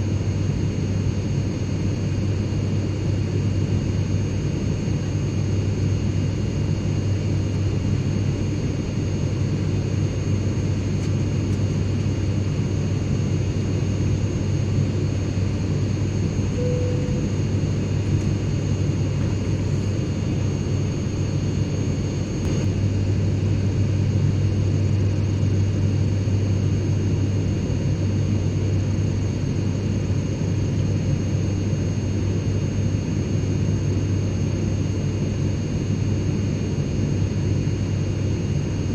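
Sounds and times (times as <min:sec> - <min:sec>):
airplane cabin drone: 0:00.0 - 0:38.9
faint high-pitched whines: 0:16.5 - 0:17.6.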